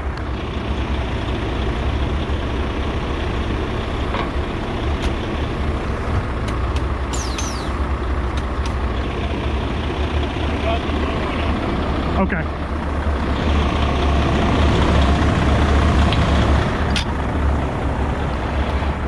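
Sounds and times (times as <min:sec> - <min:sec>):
truck diesel engines idling: 0:00.0 - 0:19.0
sharp clicks: 0:06.4 - 0:08.8.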